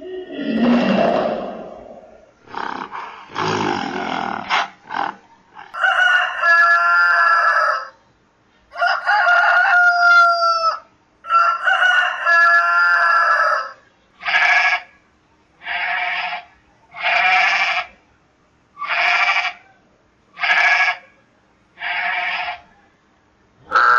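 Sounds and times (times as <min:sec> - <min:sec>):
gorilla grunts: 0:00.0 - 0:05.8
rooster crowing: 0:05.6 - 0:08.0, 0:08.7 - 0:13.8.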